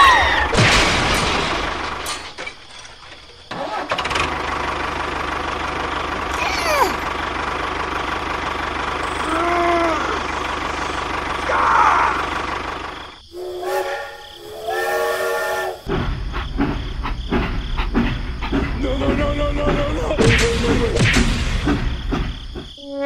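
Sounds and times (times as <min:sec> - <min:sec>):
tractor engine idling: 0:00.0 - 0:14.7, 0:15.8 - 0:22.8
brief horn-like tone: 0:13.4 - 0:15.8.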